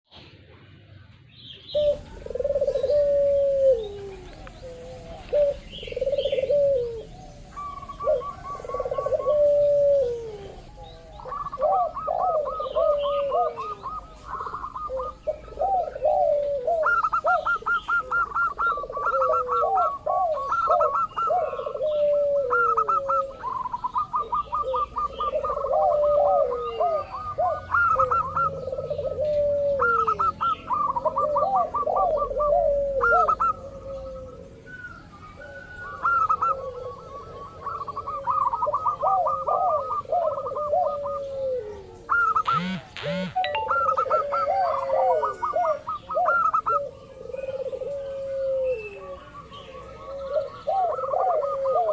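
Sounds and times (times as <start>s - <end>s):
doves cooing: 1.6s - 51.9s.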